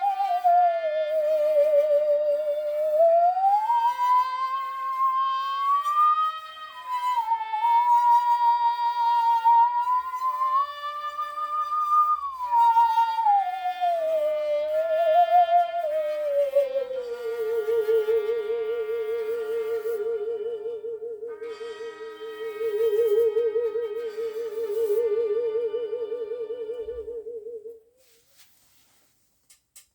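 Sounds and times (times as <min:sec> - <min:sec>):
musical saw melody with vibrato: 0:17.0 - 0:27.2.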